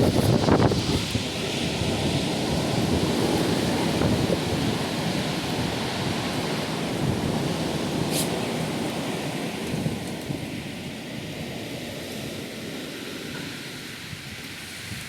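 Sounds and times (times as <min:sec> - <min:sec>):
gusty wind buffeting microphone: 0:00.0 - 0:15.0
brief high hiss: 0:08.1 - 0:08.4.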